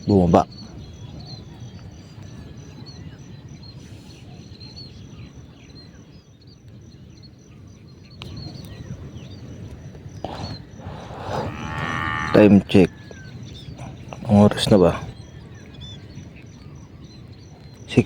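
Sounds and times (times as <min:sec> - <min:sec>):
small birds chirping: 0:00.0 - 0:18.0
pulsing insect trill: 0:08.3 - 0:18.0.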